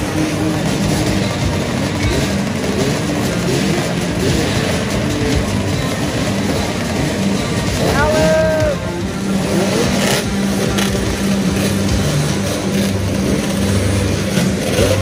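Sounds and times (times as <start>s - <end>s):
motorcycle and quad engines revving: 0.0s - 15.0s
brief high call: 7.8s - 9.0s.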